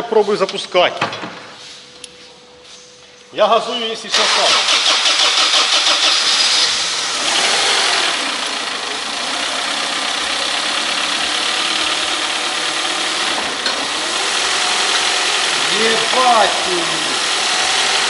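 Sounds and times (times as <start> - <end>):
car engine idling: 4.2 - 18.0.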